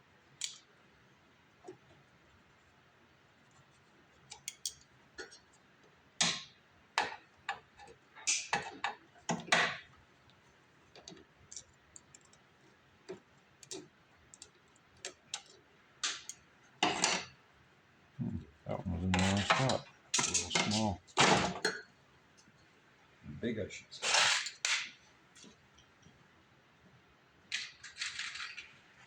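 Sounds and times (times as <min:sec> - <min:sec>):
small clicks and clinks of hose clamps: 0:00.4 - 0:00.7, 0:04.3 - 0:05.4.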